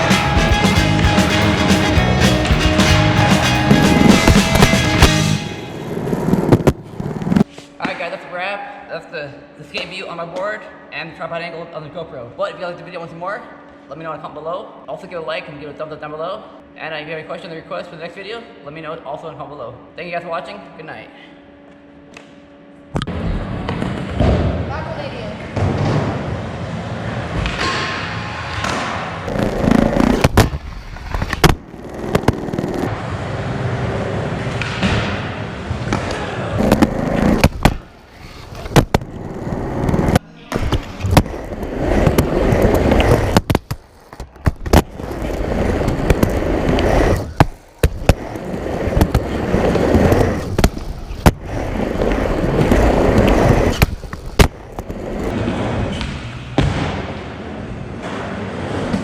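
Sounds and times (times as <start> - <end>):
skateboard wheels rumbling: 0.0 - 7.5, 23.1 - 27.5, 29.2 - 56.0.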